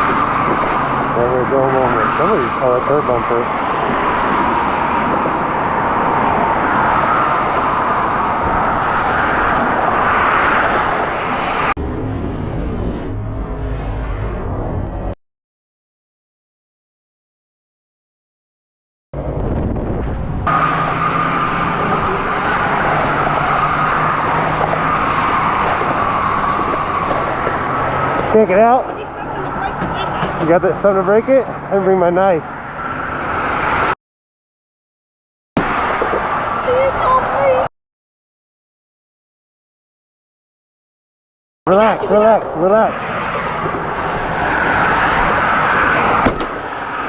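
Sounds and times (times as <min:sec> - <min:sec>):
wind rushing over microphone: 0:00.0 - 0:15.2, 0:19.2 - 0:34.0, 0:41.7 - 0:47.0.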